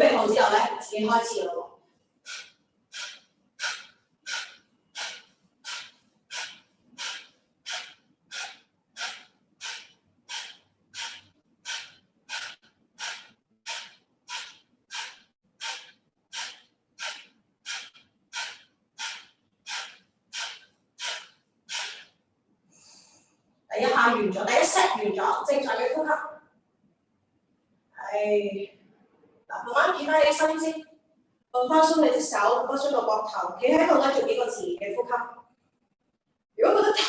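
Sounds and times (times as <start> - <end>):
forceful breathing exhalations: 2.2 - 23.4.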